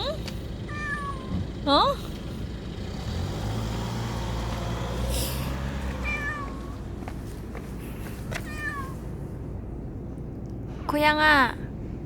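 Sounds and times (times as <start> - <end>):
cat meowing: 0.7 - 1.4, 6.0 - 6.8, 8.4 - 9.1.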